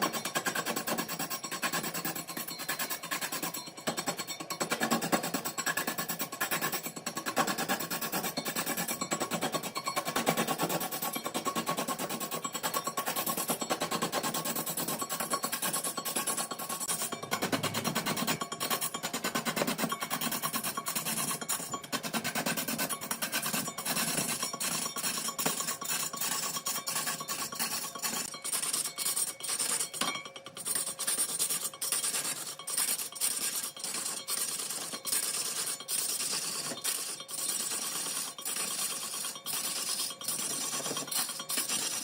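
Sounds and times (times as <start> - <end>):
lathe tool scraping wood: 11.6 - 42.0.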